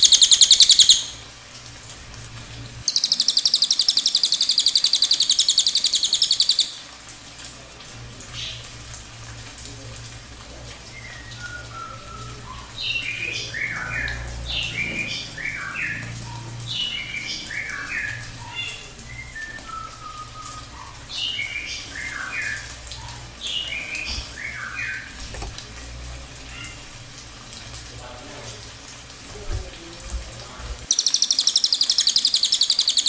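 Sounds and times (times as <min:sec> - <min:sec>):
songbird singing: 0:00.0 - 0:01.3, 0:02.8 - 0:07.0, 0:10.8 - 0:25.8, 0:30.9 - 0:33.0.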